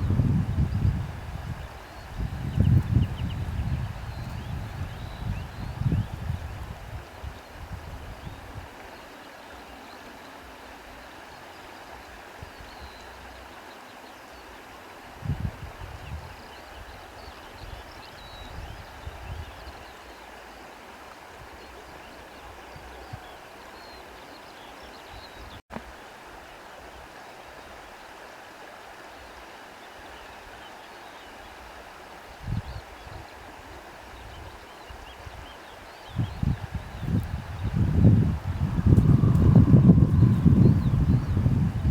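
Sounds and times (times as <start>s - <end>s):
wind noise: 0.0s - 8.8s, 15.1s - 19.8s, 32.3s - 41.9s
wind rushing: 36.3s - 41.9s.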